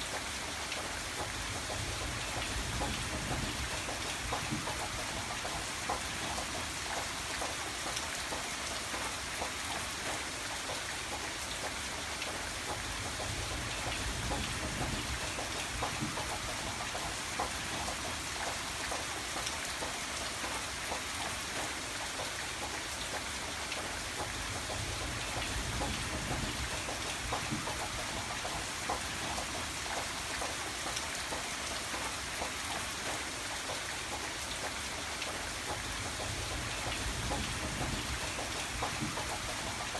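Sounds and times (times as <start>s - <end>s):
rain drops ticking: 0.0s - 39.9s.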